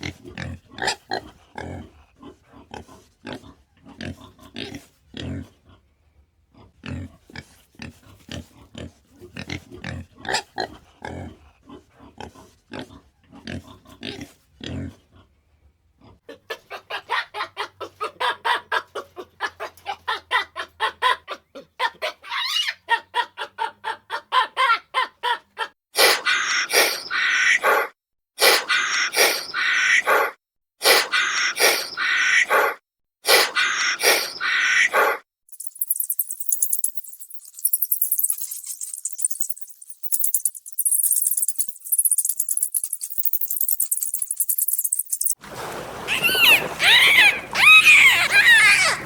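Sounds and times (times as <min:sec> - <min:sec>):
animal grunts: 0:00.0 - 0:05.8, 0:06.6 - 0:15.2
high animal squeals: 0:22.0 - 0:22.8, 0:33.3 - 0:45.4, 0:46.0 - 0:49.0
animal chattering calls: 0:33.3 - 0:45.4, 0:46.1 - 0:49.0.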